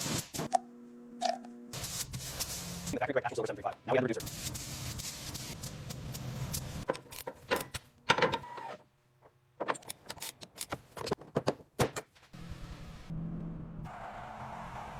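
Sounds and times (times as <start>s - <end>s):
mechanical parts clicking and clunking: 6.8s - 12.2s.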